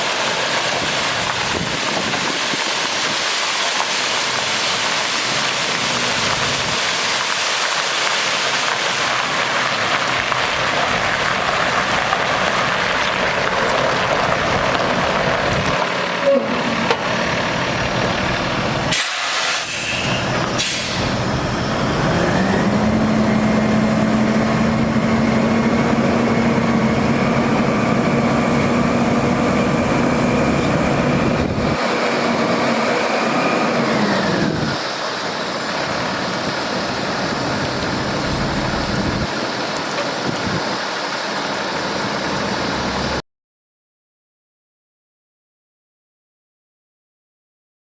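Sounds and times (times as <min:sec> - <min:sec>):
water spraying with a hiss: 0:00.0 - 0:09.6, 0:18.8 - 0:21.3
diesel engine revving: 0:08.7 - 0:43.2.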